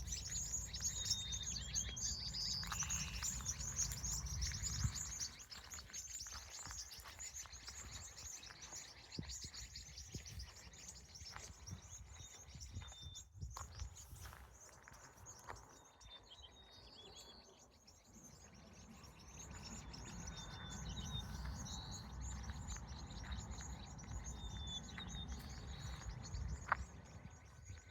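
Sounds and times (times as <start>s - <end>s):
birds chirping and twittering: 0.0s - 27.9s.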